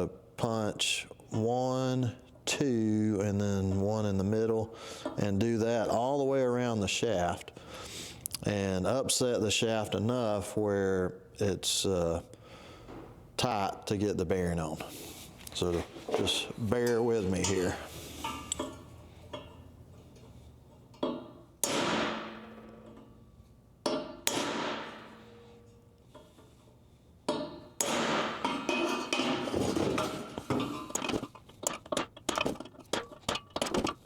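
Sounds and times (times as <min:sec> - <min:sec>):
hammer striking metal punch: 0:21.0 - 0:23.2, 0:23.8 - 0:25.8, 0:27.3 - 0:34.0.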